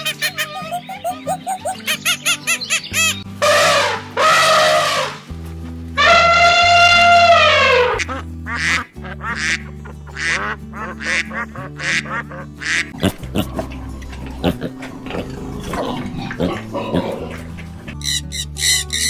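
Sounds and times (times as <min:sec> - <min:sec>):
background music: 0:00.0 - 0:19.0
duck quacking: 0:06.0 - 0:13.5.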